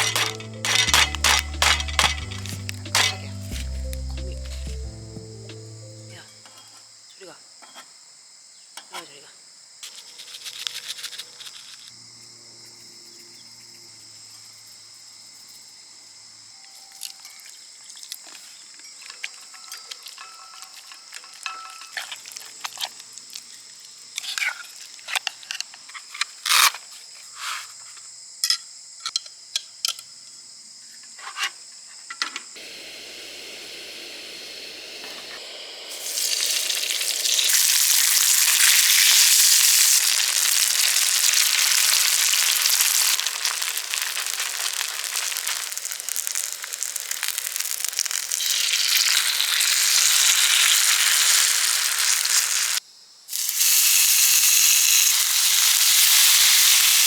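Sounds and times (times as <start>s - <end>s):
food sizzling in a hot pan: 32.6s - 57.0s.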